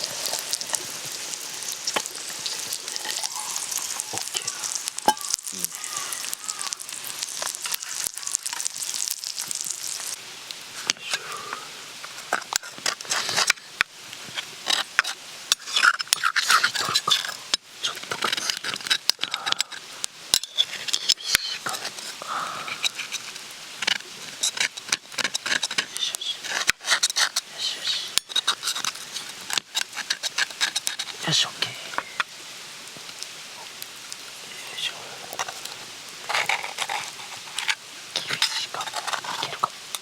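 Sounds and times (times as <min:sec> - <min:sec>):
utensil clicking and scraping pan: 0:00.0 - 0:05.5, 0:14.4 - 0:19.7, 0:22.7 - 0:27.4, 0:28.2 - 0:31.2, 0:36.3 - 0:40.0
food sizzling in a frying pan: 0:00.0 - 0:40.0.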